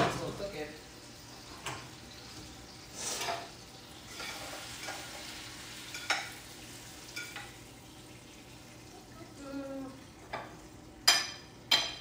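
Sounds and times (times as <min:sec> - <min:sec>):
chicken sizzling in a pan: 0:00.2 - 0:11.6.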